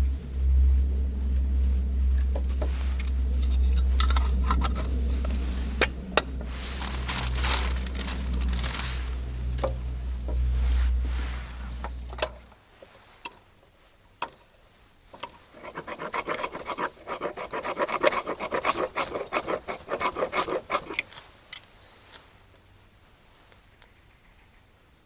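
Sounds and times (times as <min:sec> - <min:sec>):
rasping scraping strokes: 0:00.5 - 0:13.2, 0:15.4 - 0:21.3.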